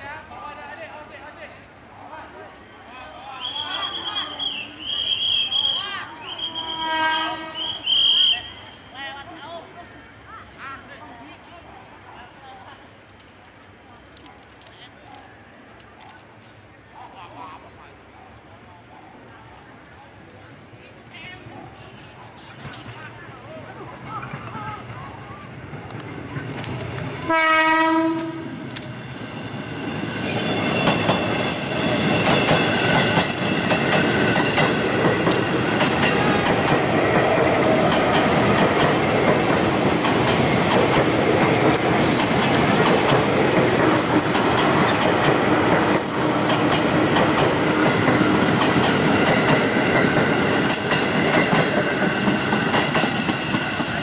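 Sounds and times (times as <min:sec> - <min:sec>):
train horn blast: 0:06.3 - 0:08.3, 0:27.2 - 0:28.6
train wheels clacking: 0:28.1 - 0:54.0.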